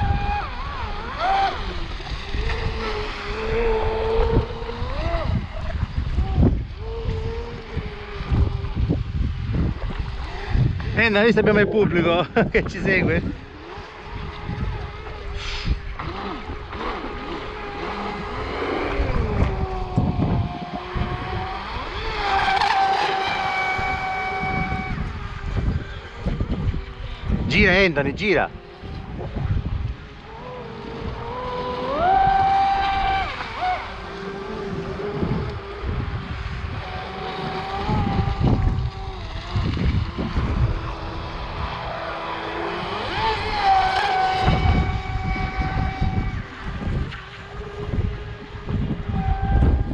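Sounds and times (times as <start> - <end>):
electric motor whining: 0.0 - 11.0, 13.2 - 49.9
wind gusts on microphone: 0.0 - 49.9
rush of spray: 15.0 - 19.4.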